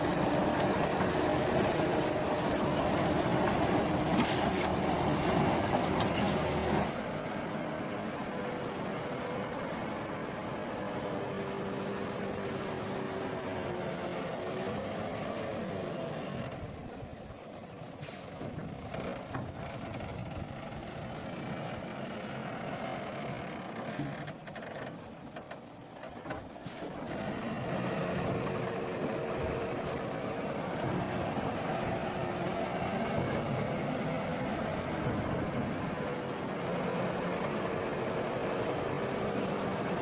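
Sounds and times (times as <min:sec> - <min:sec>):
diesel earthmoving machinery running: 0:00.0 - 0:40.0.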